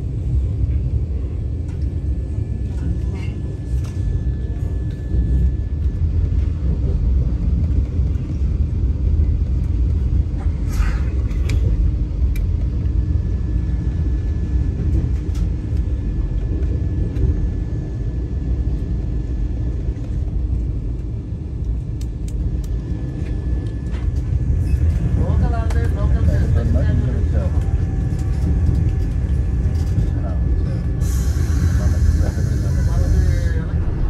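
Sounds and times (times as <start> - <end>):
electric train rumbling: 0.0 - 34.0.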